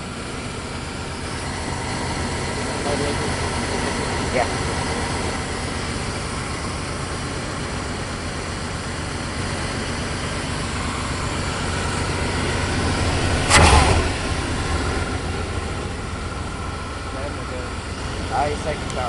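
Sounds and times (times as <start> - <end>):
truck engine running: 0.0 - 19.0
sudden thump: 13.2 - 16.6.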